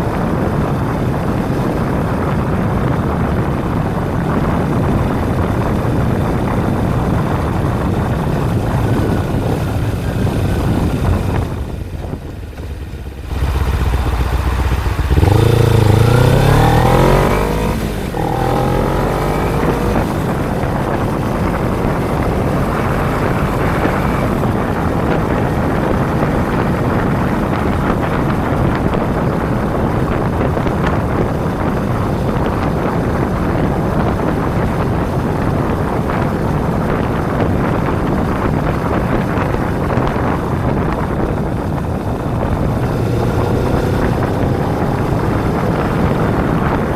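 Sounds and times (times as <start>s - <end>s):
wind rush over microphone: 0.0s - 46.9s
motorcycle engine revving: 0.8s - 46.9s.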